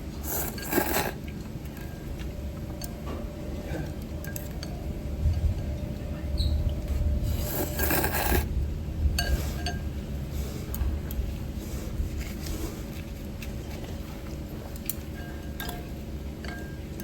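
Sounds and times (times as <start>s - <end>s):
noisy noodle slurp: 0.1s - 1.3s, 7.2s - 8.5s.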